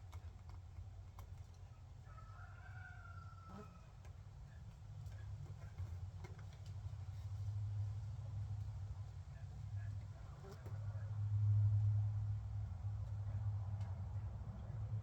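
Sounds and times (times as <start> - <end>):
faint chicken call: 2.1 - 3.9.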